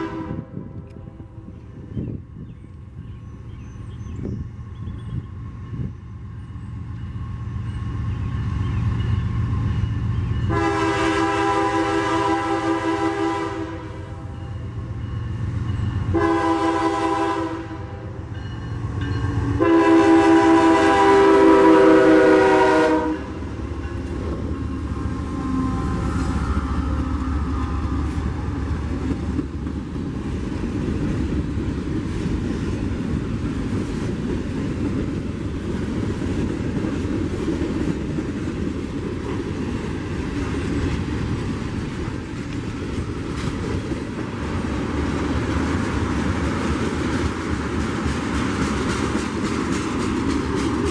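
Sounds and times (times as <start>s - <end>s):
locomotive air horn: 0.0s - 1.4s, 10.5s - 14.6s, 16.1s - 18.2s, 19.5s - 23.5s, 24.2s - 28.4s
train wheels rumbling on rail: 0.0s - 50.9s.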